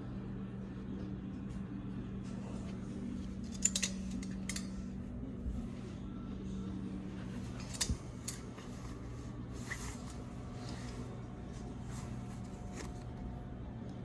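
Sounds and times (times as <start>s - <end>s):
low room hum: 0.0s - 14.0s
short rustle: 7.2s - 13.4s.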